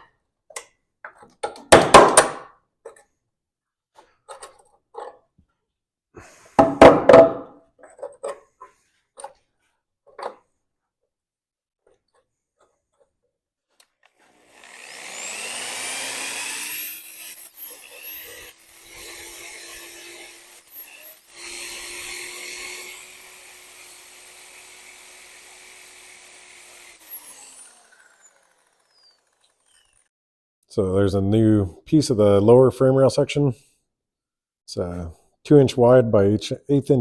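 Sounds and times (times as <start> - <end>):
grinder whining cutting steel: 14.1 - 30.1.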